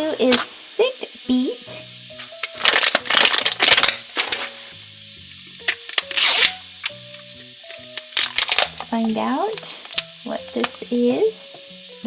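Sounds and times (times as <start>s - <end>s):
light background music: 0.0s - 12.0s
plastic wrapping crinkling and tearing: 0.2s - 0.6s, 2.1s - 4.8s, 5.4s - 10.8s.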